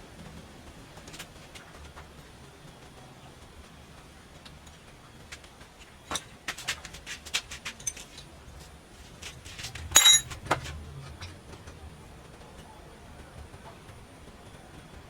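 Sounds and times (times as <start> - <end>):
metal clattering clash: 9.9 - 10.4
metal pieces clinking: 10.0 - 10.4.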